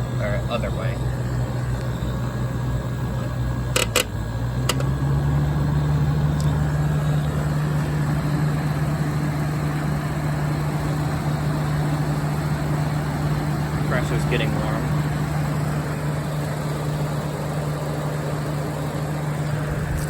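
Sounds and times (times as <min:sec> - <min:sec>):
air conditioner humming: 0:00.0 - 0:20.0
sharp clicks: 0:03.7 - 0:05.0.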